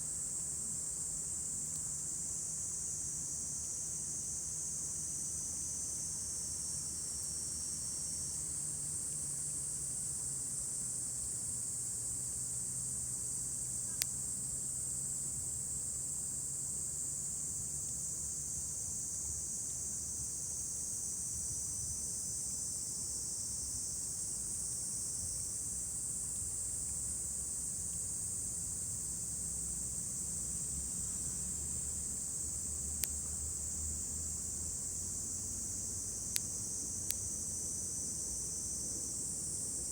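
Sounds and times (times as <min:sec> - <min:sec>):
insects chirring: 0:23.4 - 0:39.9.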